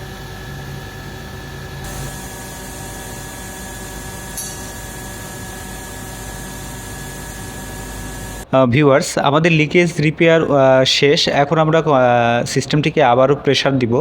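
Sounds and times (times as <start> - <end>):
torch flame hissing: 0.0 - 8.5
machine hum: 0.0 - 8.6.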